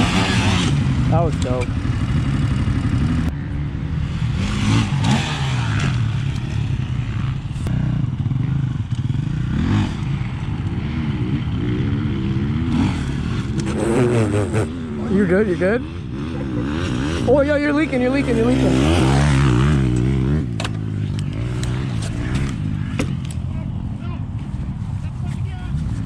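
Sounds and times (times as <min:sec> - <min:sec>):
dirt bike engine revving: 0:00.0 - 0:23.2.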